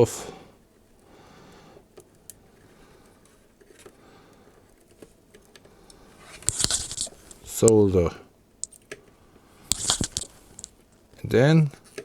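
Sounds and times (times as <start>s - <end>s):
short rustle: 6.1s - 7.7s, 9.7s - 10.8s.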